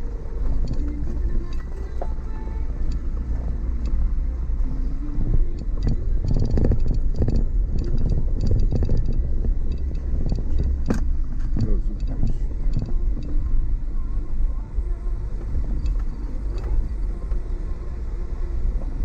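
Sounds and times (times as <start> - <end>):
car low rumble: 0.0 - 19.0
rattles and knocks: 5.3 - 13.4.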